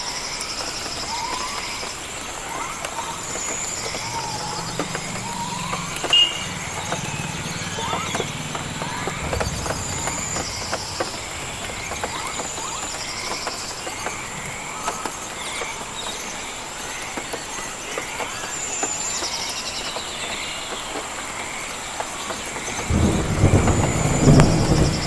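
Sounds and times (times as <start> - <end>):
insects high-pitched whine: 0.0 - 25.0
sharp ticks: 0.4 - 16.3
pulsed insect chirps: 2.5 - 15.7.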